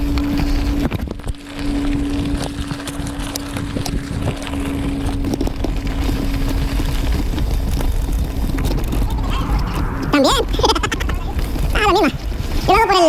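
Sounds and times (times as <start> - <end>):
bike tyres clicking and rattling: 0.0 - 9.2
wind rumbling on microphone: 0.0 - 13.0
steady hum: 7.9 - 11.8.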